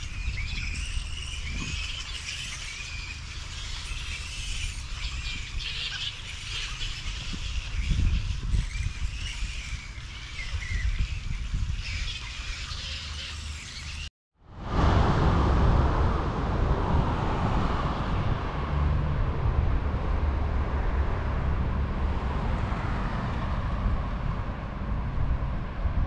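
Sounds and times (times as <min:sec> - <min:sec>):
birds chirping and whistling: 0:00.0 - 0:14.1
low fluctuating rumble: 0:00.0 - 0:22.6.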